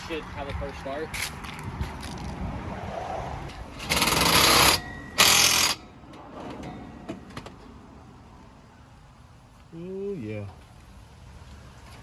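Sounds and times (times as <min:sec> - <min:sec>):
impact wrench hammering: 0:03.8 - 0:05.9.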